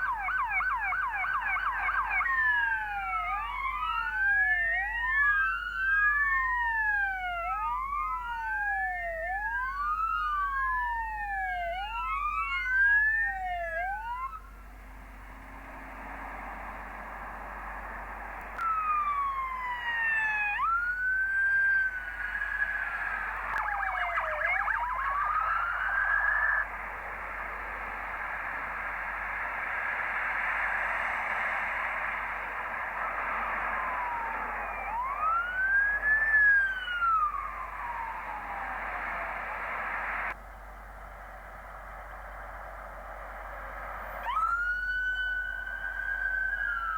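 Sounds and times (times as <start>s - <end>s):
police sirens wailing: 0.0s - 46.9s
passing traffic rushing: 13.3s - 46.9s.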